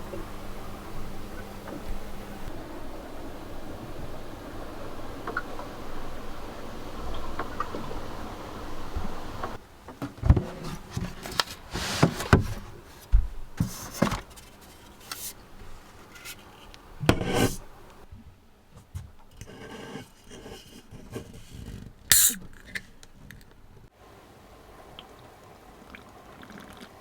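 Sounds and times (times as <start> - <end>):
knocks scrapes and rustles: 9.4 - 18.1.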